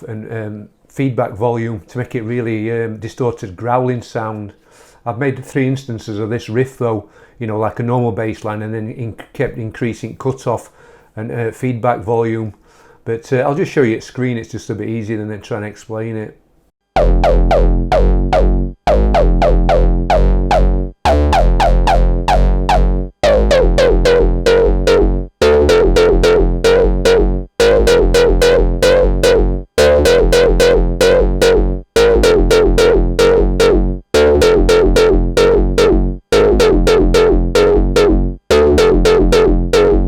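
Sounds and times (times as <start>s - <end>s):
deep low bass: 17.0s - 40.0s
distorted growling synth bass riff: 17.0s - 40.0s.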